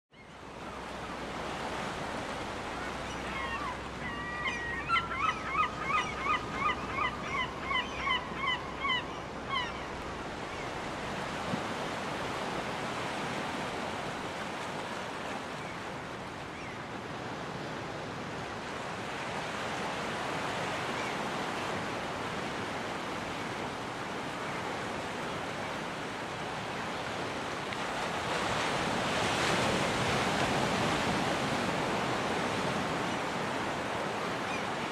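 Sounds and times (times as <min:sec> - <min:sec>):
ocean surf washing on beach: 0:00.4 - 0:04.1, 0:09.3 - 0:34.9
gull calling: 0:02.8 - 0:10.0.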